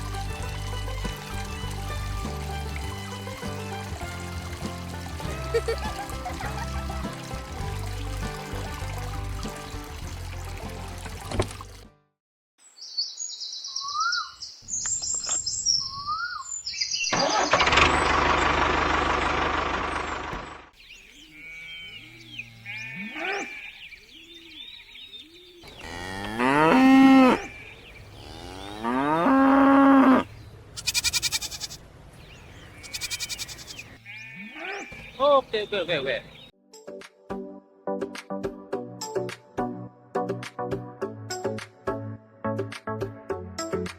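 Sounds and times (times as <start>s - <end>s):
cows mooing: 21.3s - 23.8s, 25.7s - 31.8s, 32.8s - 35.0s.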